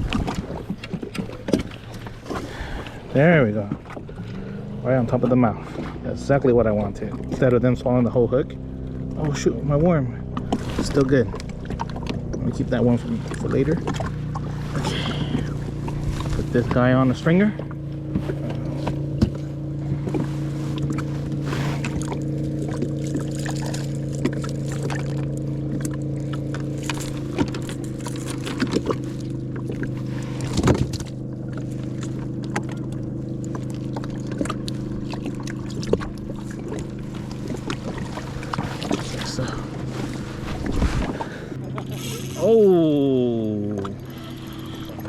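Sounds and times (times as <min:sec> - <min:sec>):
steady motor hum: 0:00.0 - 0:45.0.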